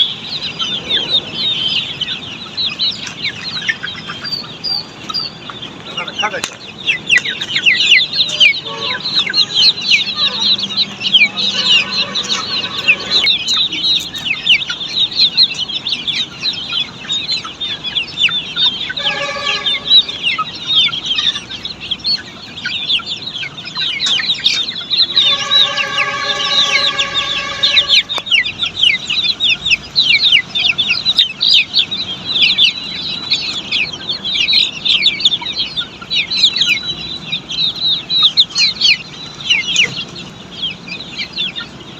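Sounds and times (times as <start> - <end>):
chicks peeping: 0.0 - 41.9
lower multi-tone call: 8.6 - 13.6, 19.0 - 20.3, 25.1 - 28.4.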